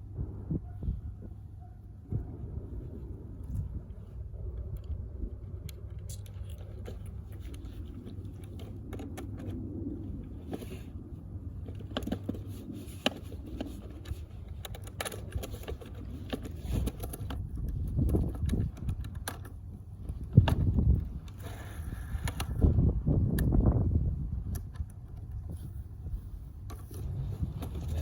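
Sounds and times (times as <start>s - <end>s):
wind rumble on microphone: 0.0s - 28.0s
metal clicks and scrapes: 11.7s - 19.6s.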